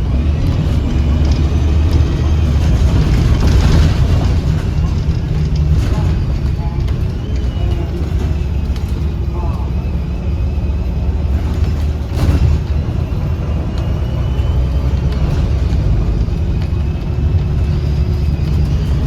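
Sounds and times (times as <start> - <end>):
bus bump: 0.0 - 19.0
bus engine droning: 0.0 - 19.0
faint high whistle: 13.0 - 15.2.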